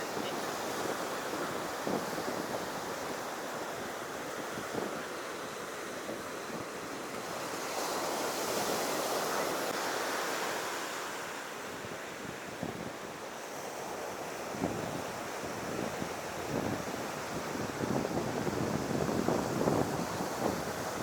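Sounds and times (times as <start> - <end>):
wind buffeting microphone: 0.0 - 9.7, 14.2 - 21.0.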